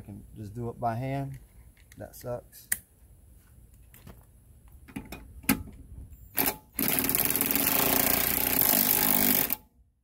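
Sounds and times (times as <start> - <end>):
impact driver running: 6.4 - 9.6.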